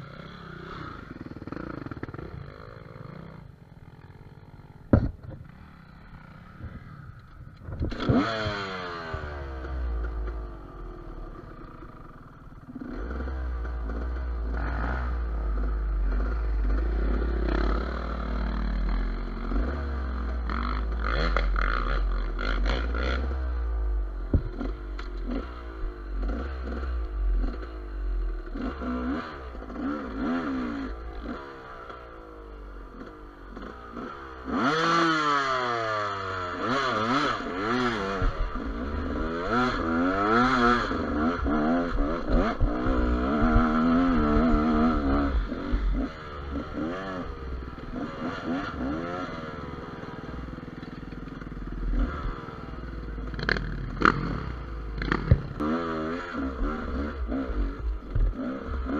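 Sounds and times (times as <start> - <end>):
motorcycle engine revving: 0.0 - 58.9
motorcycle clattering over rough ground: 4.8 - 5.8, 53.2 - 55.8.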